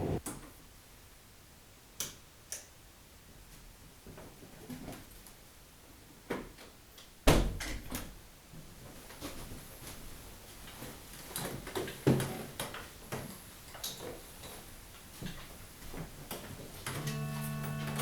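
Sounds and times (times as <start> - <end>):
held musical chord: 17.0 - 18.0.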